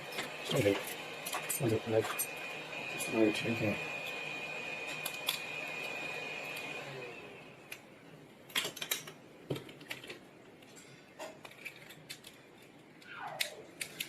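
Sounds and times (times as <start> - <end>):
glass cracking and snapping: 11.2 - 12.4.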